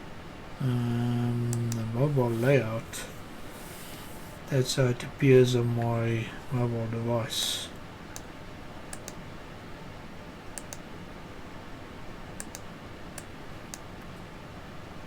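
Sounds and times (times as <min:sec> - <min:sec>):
low background hum: 0:00.0 - 0:15.0
computer mouse clicks: 0:08.1 - 0:08.3, 0:08.9 - 0:09.2, 0:10.5 - 0:10.9, 0:12.4 - 0:13.9.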